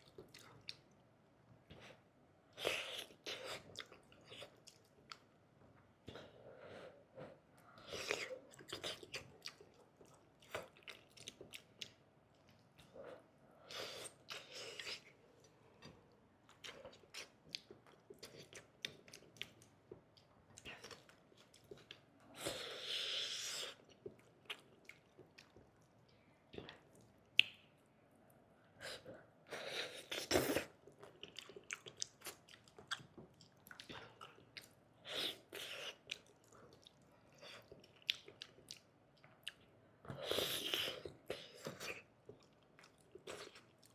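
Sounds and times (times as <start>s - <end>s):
person chewing wetly: 0.0s - 1.0s, 2.7s - 5.3s, 7.8s - 13.2s, 14.0s - 22.1s, 23.7s - 26.0s, 29.9s - 43.9s.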